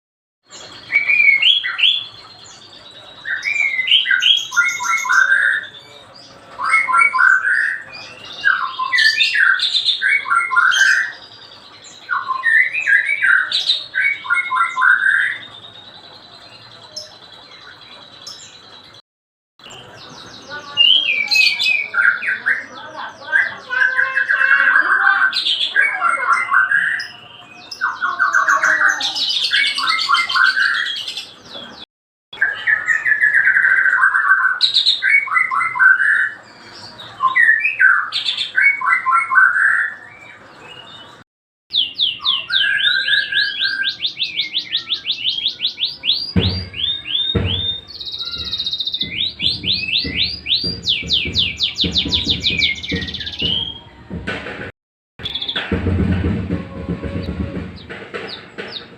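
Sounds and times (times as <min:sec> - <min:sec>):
songbird whistling and trilling: 0:00.5 - 0:19.0, 0:20.8 - 0:31.8, 0:32.4 - 0:53.9, 0:55.2 - 0:55.6
low thuds: 0:46.4 - 0:58.9.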